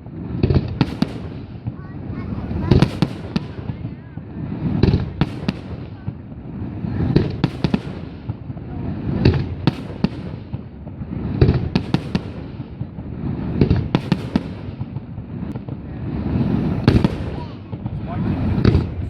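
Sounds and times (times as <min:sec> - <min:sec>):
firework booms: 0:00.0 - 0:19.0
firework cracks and bangs: 0:00.0 - 0:19.0.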